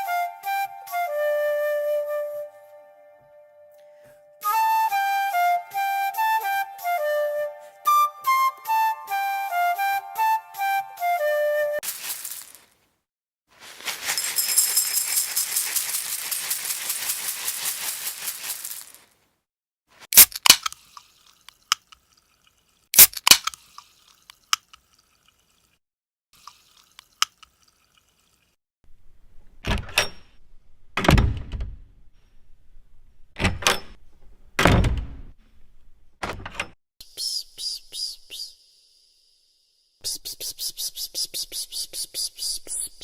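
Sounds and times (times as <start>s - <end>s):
dry rattle shaken rapidly: 11.8s - 12.6s, 13.6s - 19.1s.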